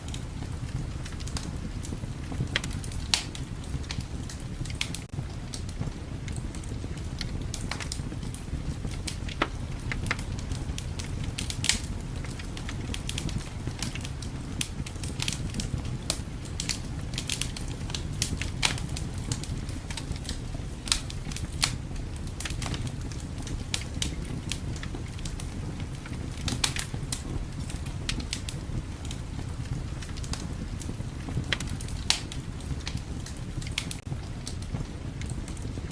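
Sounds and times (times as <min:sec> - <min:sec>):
low rumble of wind: 0:00.0 - 0:35.9
wood fire crackling and popping: 0:00.0 - 0:35.9.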